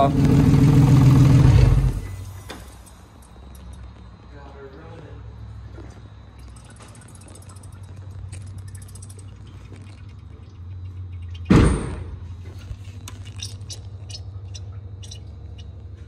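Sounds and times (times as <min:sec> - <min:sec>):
car engine idling: 0:00.0 - 0:03.0.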